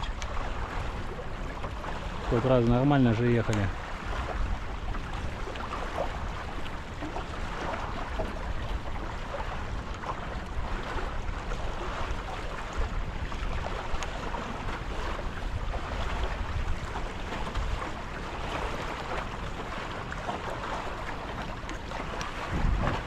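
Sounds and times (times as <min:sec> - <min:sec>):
water splashing along boat hulls: 0:00.0 - 0:23.0
wind rumbling on microphone: 0:00.0 - 0:23.0.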